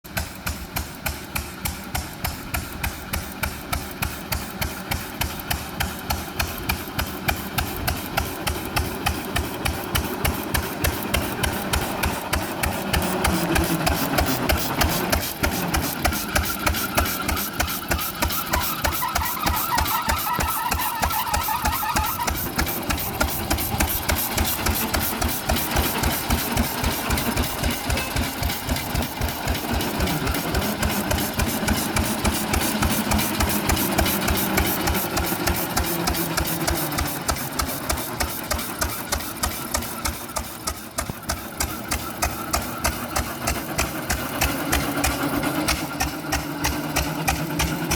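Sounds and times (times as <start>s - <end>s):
single-cylinder engine firing: 0.1s - 47.9s.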